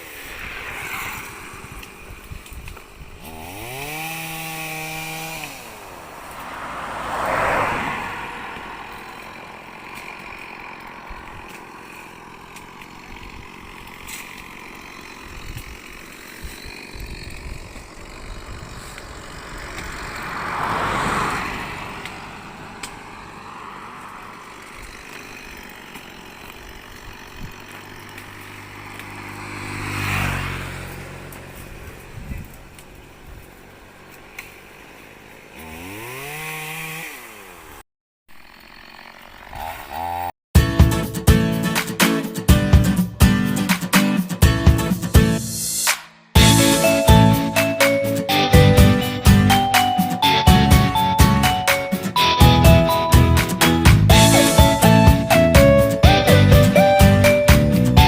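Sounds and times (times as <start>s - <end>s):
vehicles passing by: 0.0s - 37.8s, 38.4s - 58.0s
motor running steadily: 8.6s - 20.3s, 22.0s - 30.0s.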